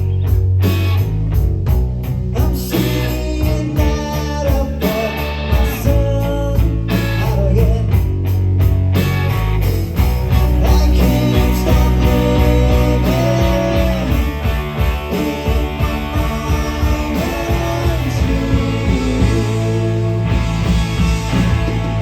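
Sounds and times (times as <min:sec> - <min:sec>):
bass: 0:00.0 - 0:22.0
electric guitar: 0:00.0 - 0:22.0
drum beat: 0:10.0 - 0:22.0.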